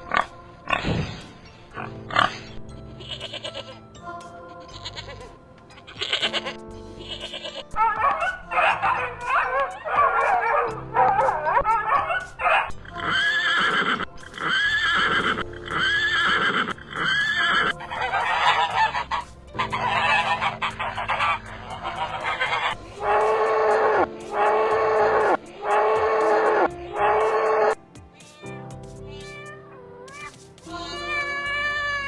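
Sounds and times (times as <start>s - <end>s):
background music: 0.0s - 32.0s
horse whinnying: 9.5s - 27.8s.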